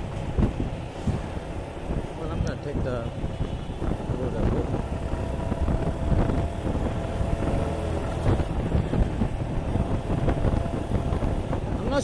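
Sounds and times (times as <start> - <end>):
wind buffeting microphone: 0.0 - 12.0
motorcycle engine running: 3.9 - 11.8.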